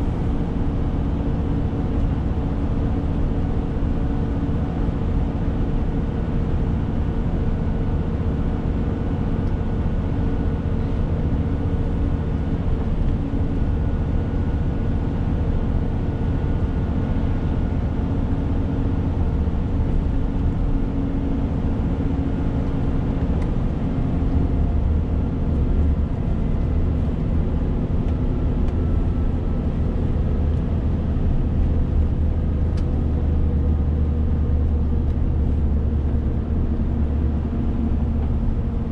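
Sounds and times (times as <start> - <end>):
road noise: 0.0 - 38.9
truck diesel engine droning: 0.0 - 38.9.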